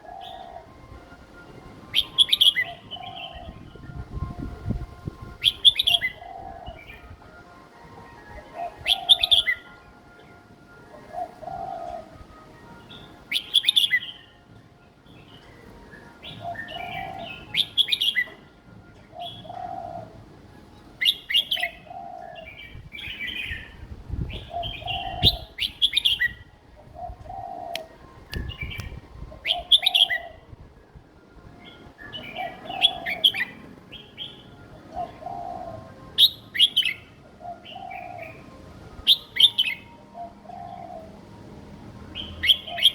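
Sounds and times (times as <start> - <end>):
bird singing song phrase: 2.0 - 4.8, 12.8 - 14.4, 15.1 - 18.5, 21.0 - 30.5.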